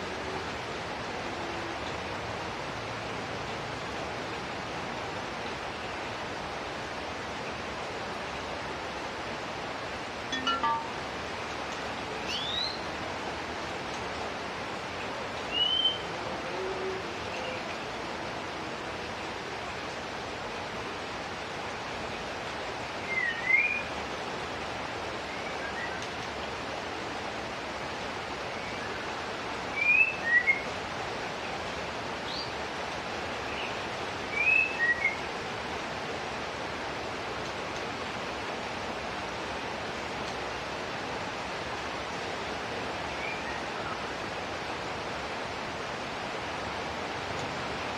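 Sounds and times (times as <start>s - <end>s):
bird chirping calls: 10.3s - 11.0s.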